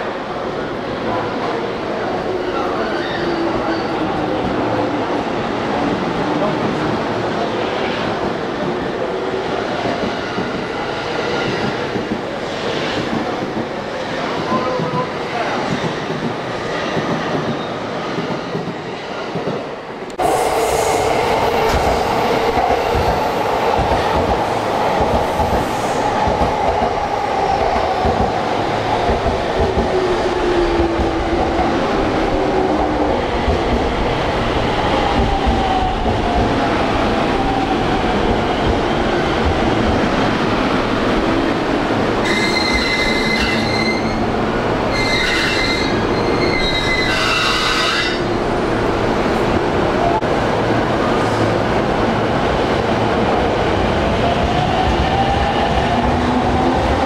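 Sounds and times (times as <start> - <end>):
high wheel squeal: 44.9 - 48.3.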